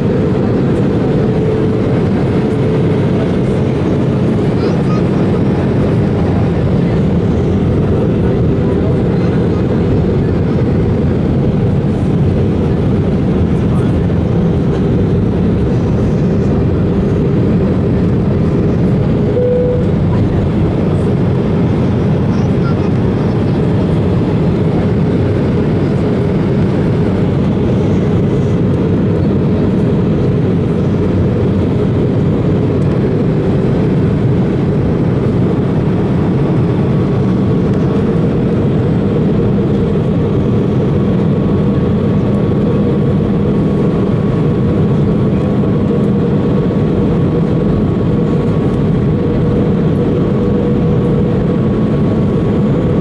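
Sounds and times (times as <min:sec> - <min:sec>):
airflow rushing in cabin: 0:00.0 - 0:53.0
low engine hum: 0:00.0 - 0:53.0
faint high steady tone: 0:19.3 - 0:20.1.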